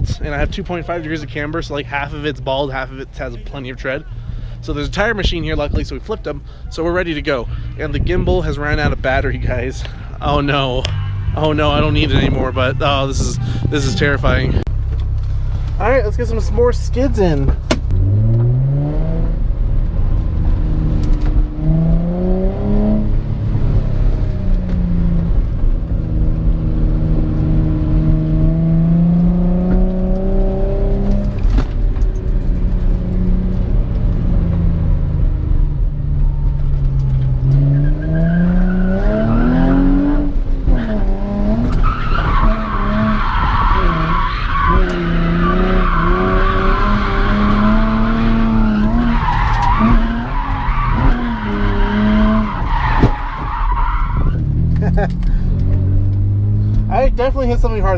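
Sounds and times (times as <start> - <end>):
car engine revving: 7.1 - 57.9
tyres squealing: 41.6 - 54.4.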